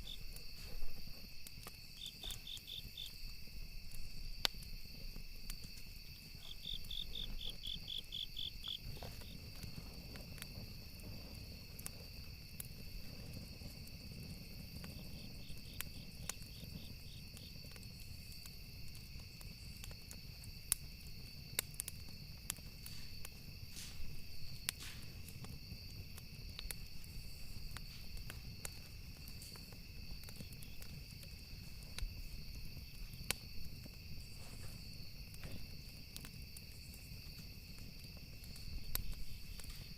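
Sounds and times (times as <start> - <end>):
crickets chirping: 0.0 - 39.9
wood fire crackling and popping: 0.0 - 39.9
pulsing insect trill: 5.9 - 9.8.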